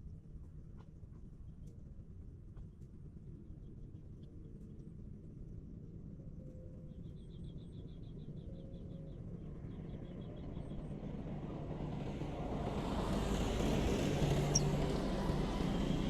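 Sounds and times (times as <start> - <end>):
approaching road vehicle: 11.4 - 16.0
small bird chipping: 14.4 - 14.9.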